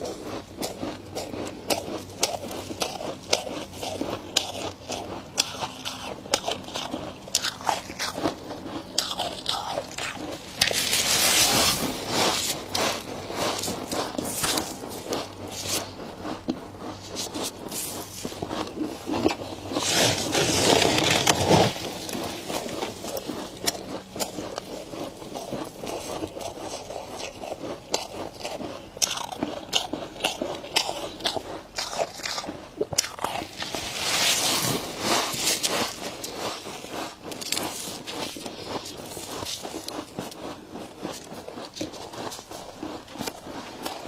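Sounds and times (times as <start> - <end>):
freezer frost being scraped: 0.0 - 44.0.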